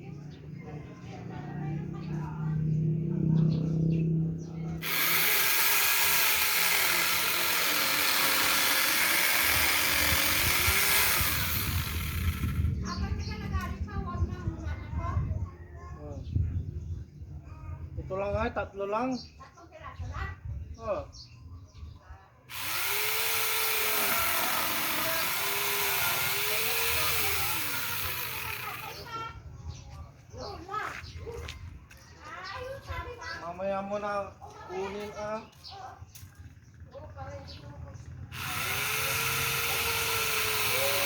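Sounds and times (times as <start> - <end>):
rough low rattle: 3.6 - 13.8, 22.5 - 29.2
angle grinder running: 4.8 - 12.8, 22.5 - 29.1, 38.3 - 41.0.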